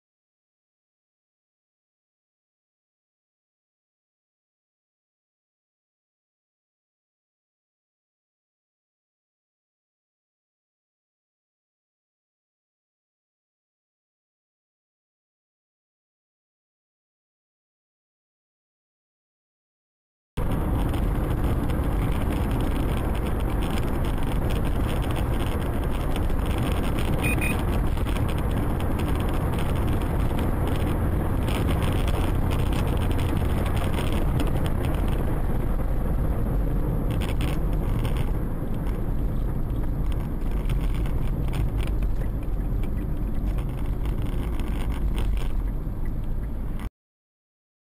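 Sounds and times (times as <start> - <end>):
car road and engine rumble: 20.4 - 46.9.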